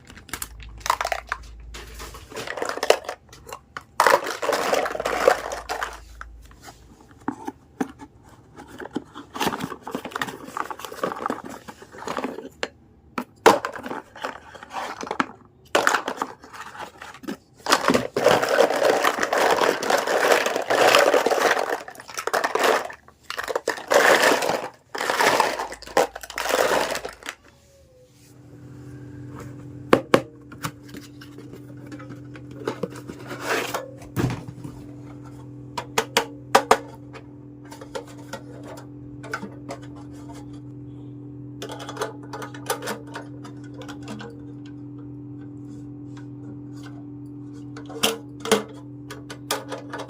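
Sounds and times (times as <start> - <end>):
plastic packaging crinkling: 0.0 - 6.5, 13.7 - 27.5
low hum: 24.9 - 50.0.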